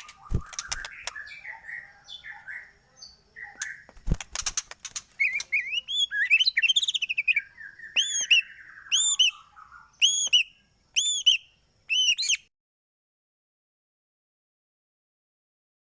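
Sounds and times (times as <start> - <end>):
bird whistles and warbled trills: 0.0 - 12.5.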